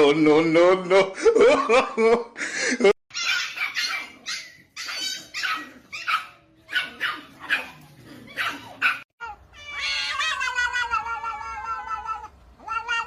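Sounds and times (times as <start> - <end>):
dog barking and yipping: 3.1 - 10.8
cat meowing: 9.2 - 13.0.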